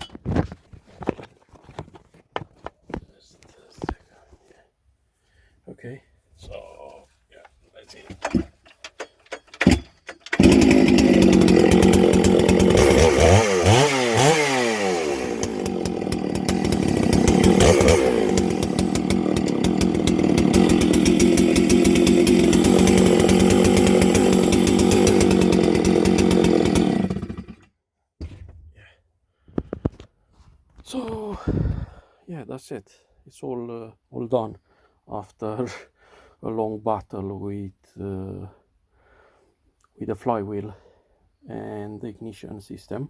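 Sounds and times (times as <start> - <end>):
chainsaw revving: 9.6 - 27.7.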